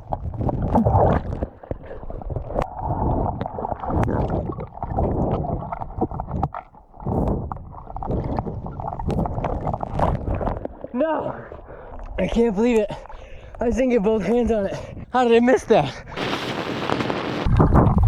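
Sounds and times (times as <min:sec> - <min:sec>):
muffled underwater bubbling: 0:00.0 - 0:13.7.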